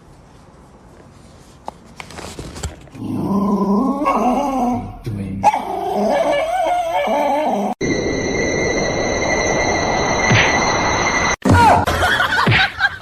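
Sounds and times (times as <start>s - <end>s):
dog growling and barking: 5.4s - 7.8s.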